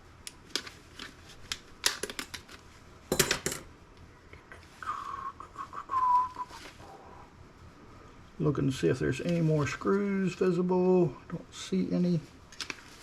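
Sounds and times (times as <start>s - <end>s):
high whistle-like tone: 4.8s - 6.6s.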